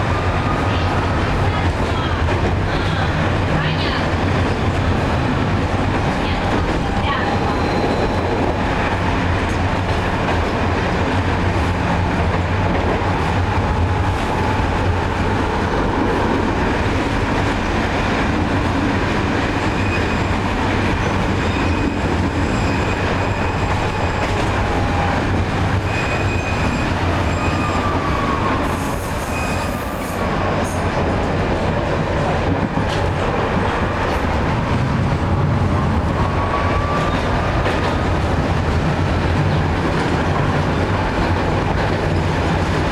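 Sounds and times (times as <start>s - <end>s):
tram running on track: 0.0s - 42.9s
tram wheel squeals: 6.3s - 8.9s, 19.6s - 30.9s, 36.2s - 38.0s.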